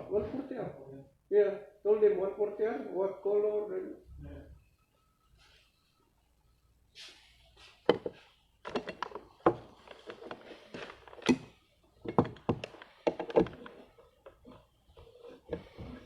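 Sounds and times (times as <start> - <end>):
hard objects knocking and clattering: 7.8 - 16.0.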